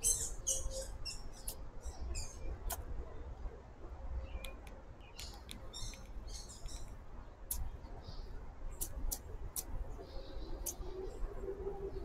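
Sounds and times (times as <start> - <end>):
birds twittering: 0.0 - 2.8, 4.2 - 12.0
small birds chip notes: 4.3 - 11.2.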